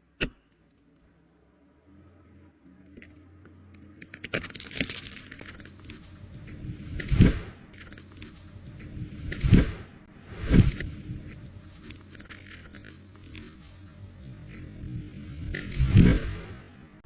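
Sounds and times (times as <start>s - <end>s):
wood cracking and snapping: 3.8s - 8.4s
tree trunk crashing down: 4.3s - 6.1s.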